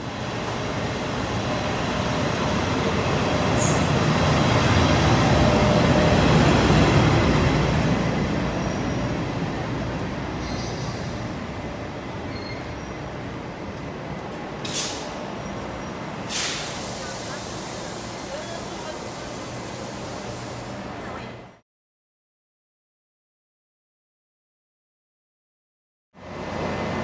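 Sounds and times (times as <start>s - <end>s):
train running past: 0.0s - 21.6s, 26.2s - 27.0s
faint wheel squeal: 12.3s - 13.0s.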